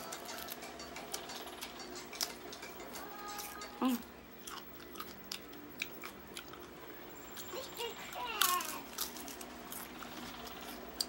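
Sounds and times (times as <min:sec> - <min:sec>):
crunchy chewing: 0:00.0 - 0:11.0.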